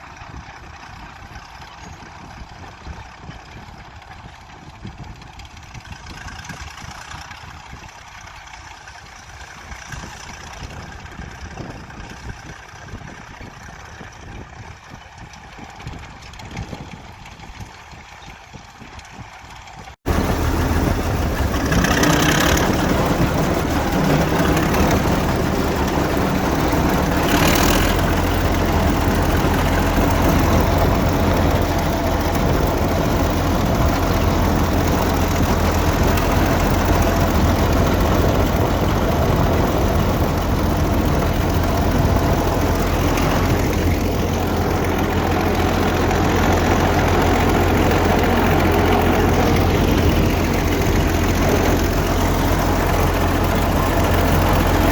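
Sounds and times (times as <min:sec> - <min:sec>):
crawler tractor diesel engine running: 0:19.4 - 0:54.9.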